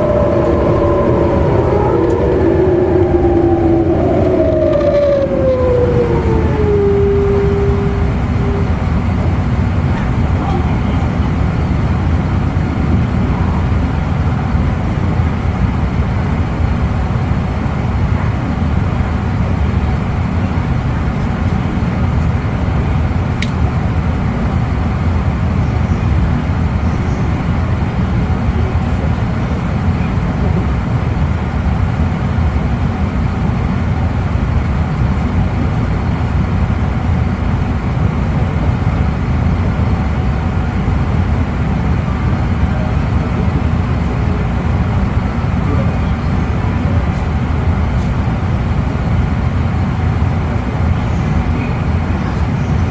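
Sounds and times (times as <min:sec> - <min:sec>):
train running rumble: 0:00.0 - 0:52.9.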